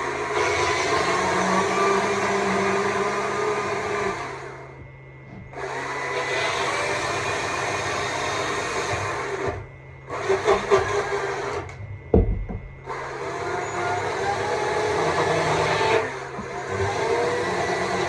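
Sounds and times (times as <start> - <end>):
chainsaw cutting wood: 5.6 - 11.8, 12.8 - 18.0.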